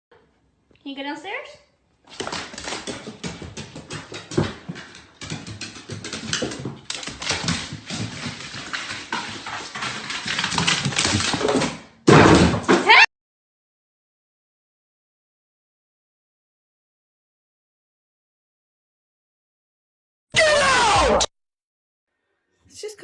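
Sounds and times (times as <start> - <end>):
sharp knocks and clatter: 2.1 - 12.8.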